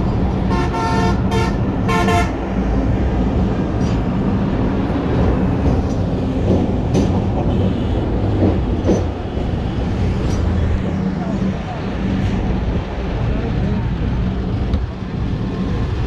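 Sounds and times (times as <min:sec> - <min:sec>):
passenger train rumbling: 0:00.0 - 0:16.0
train horn toots: 0:00.5 - 0:02.4.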